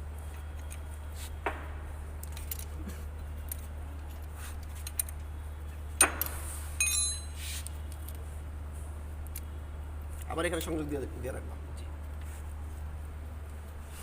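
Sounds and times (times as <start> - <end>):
hand tools and bolts clinking: 2.2 - 5.2, 6.0 - 8.2
metallic ring: 6.2 - 7.4.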